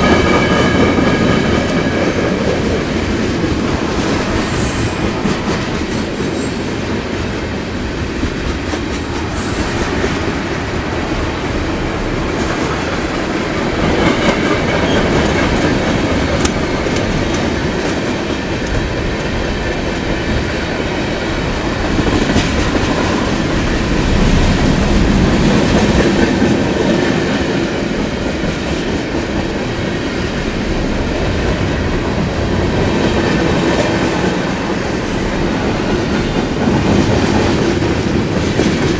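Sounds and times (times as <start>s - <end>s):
wheels squealing: 3.6s - 8.0s.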